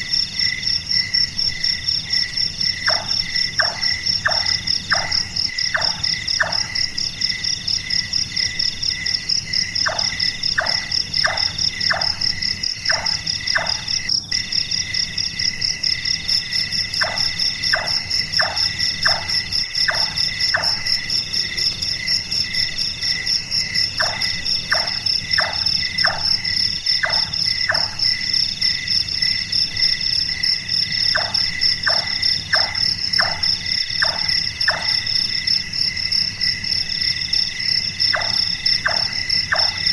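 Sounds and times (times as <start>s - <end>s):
crickets chirping: 0.0s - 39.9s
nightjar hollow knocking calls: 2.8s - 6.9s, 9.8s - 14.0s, 17.0s - 21.0s, 23.9s - 28.0s, 31.1s - 35.1s, 38.0s - 39.9s.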